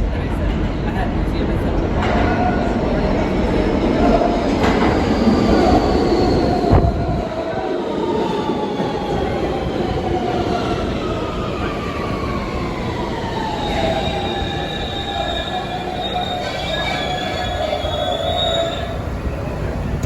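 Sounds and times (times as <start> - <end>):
subway train rumble: 0.0 - 20.0
wheels squealing: 13.0 - 20.0.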